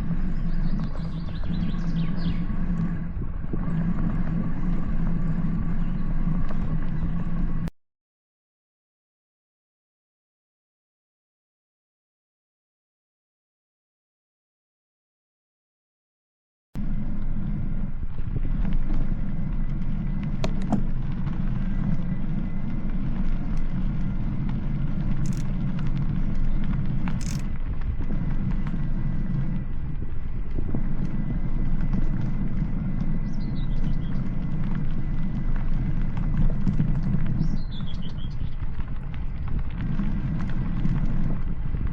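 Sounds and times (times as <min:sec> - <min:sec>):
bird chirping: 0:00.0 - 0:03.0, 0:33.2 - 0:34.4, 0:37.3 - 0:38.6
faint high whine: 0:00.0 - 0:07.7, 0:16.8 - 0:41.9
vehicle engine rumble: 0:00.0 - 0:07.7, 0:16.8 - 0:41.9.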